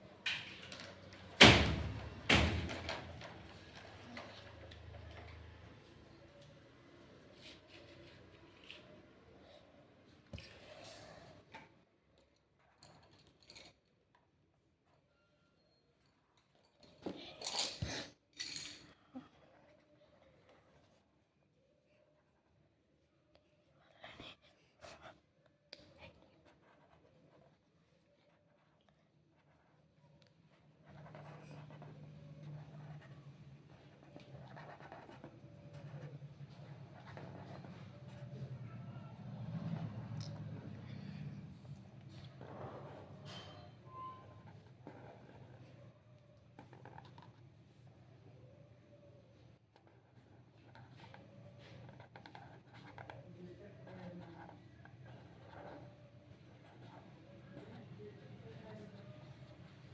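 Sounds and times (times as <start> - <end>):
drawing on paper scratching: 26.0 - 40.4, 41.8 - 47.5, 49.7 - 59.9.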